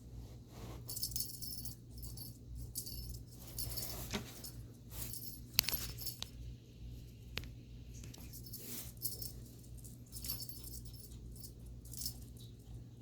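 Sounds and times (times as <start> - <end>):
cat toy bell jingling: 0.9 - 6.3, 8.2 - 12.7.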